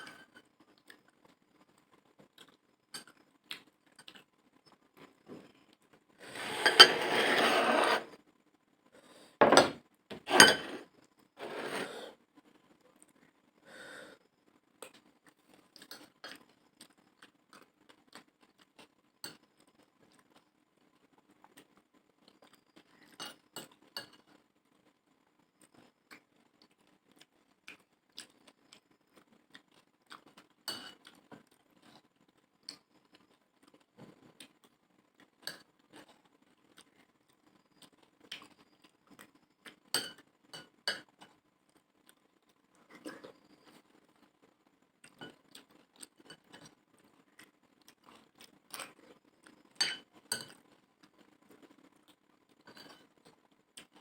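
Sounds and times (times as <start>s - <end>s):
spoon clinking on a plate: 9.4s - 10.8s, 40.0s - 41.1s, 49.8s - 50.6s.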